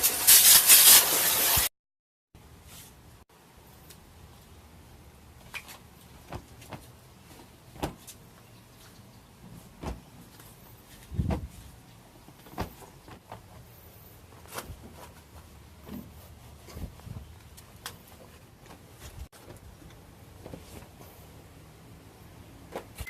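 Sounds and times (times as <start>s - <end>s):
heavy thump: 9.8s - 10.0s, 11.1s - 11.6s, 12.5s - 13.2s.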